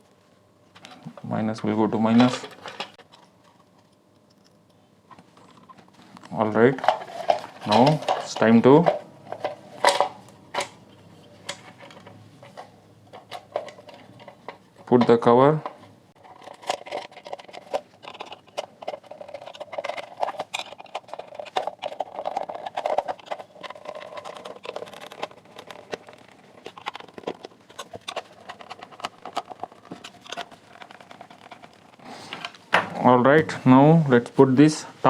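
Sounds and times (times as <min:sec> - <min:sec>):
plastic scraping: 0:16.2 - 0:32.7.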